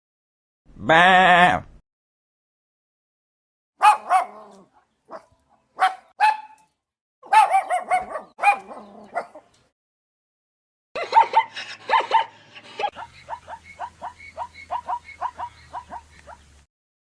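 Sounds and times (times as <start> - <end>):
dog yapping: 3.8 - 6.6, 7.2 - 9.5, 11.0 - 16.4.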